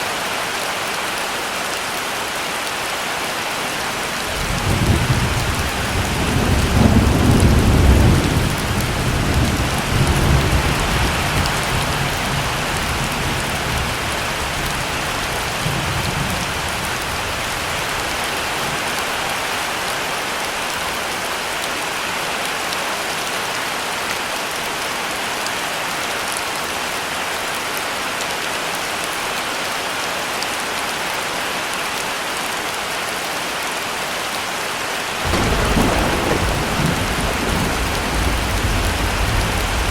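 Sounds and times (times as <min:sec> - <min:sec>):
heavy rain falling: 0:00.0 - 0:39.9
rolling thunder rumble: 0:04.3 - 0:18.9, 0:35.3 - 0:39.9.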